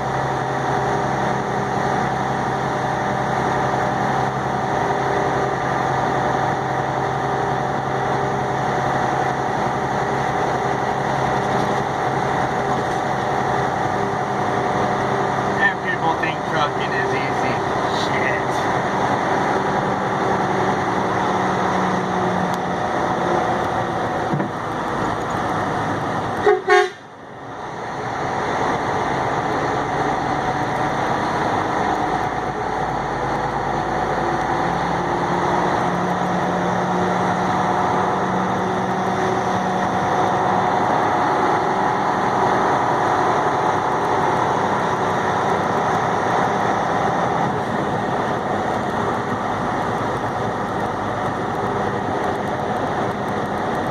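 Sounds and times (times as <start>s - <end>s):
truck engine and road noise: 0.0s - 53.9s
short horn toots: 26.4s - 27.0s.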